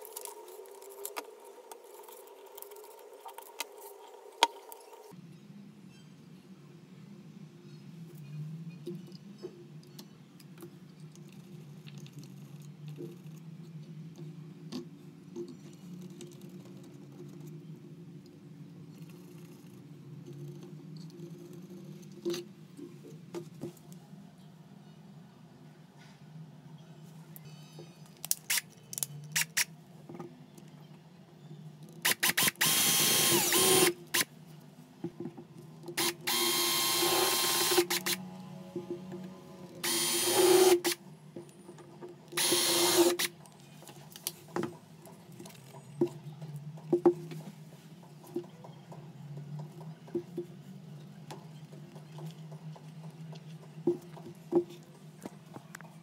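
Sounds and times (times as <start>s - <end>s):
handheld power tool whining: 32.1s - 34.3s, 36.0s - 41.0s, 42.4s - 43.3s.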